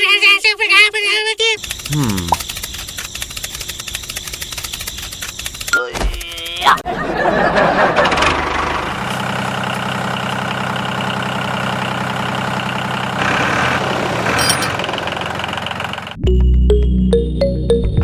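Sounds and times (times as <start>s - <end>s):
tractor engine idling: 7.5s - 16.2s
music: 16.2s - 18.0s.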